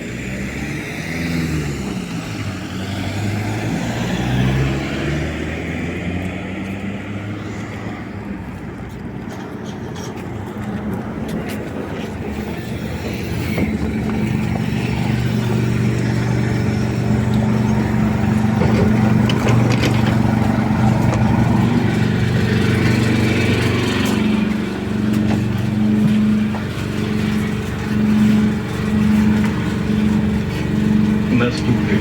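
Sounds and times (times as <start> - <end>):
road and body noise: 0.0 - 32.0
trolleybus electric hum: 0.0 - 32.0.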